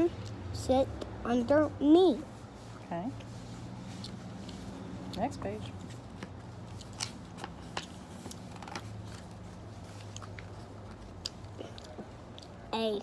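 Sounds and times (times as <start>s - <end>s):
book pages turning: 5.8s - 11.2s.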